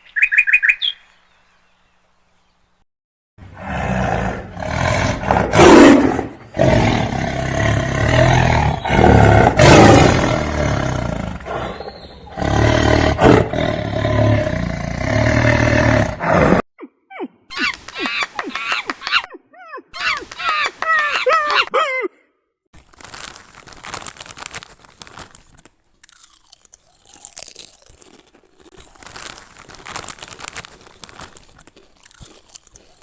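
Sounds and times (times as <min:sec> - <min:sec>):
big cat roaring: 0:03.5 - 0:16.6.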